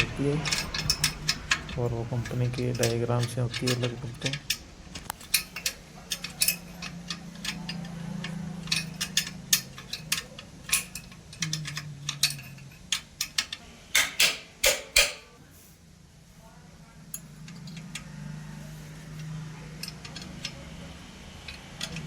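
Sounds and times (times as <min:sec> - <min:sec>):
metal tools clinking: 0:00.0 - 0:15.4
low steady hum: 0:00.0 - 0:22.0.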